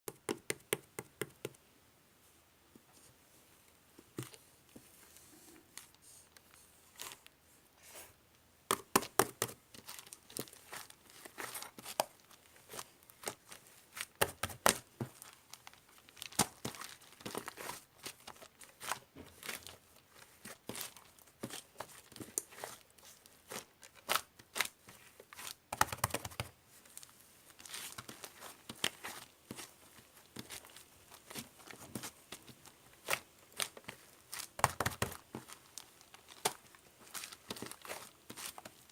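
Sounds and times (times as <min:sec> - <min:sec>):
slime crackling and popping: 0:08.7 - 0:38.9.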